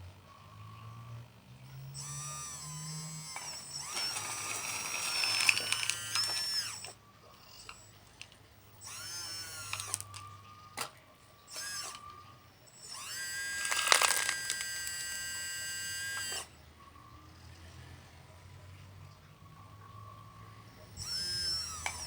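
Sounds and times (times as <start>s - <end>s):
small electric motor whining: 0.0s - 22.0s
sharp clicks: 2.0s - 15.4s.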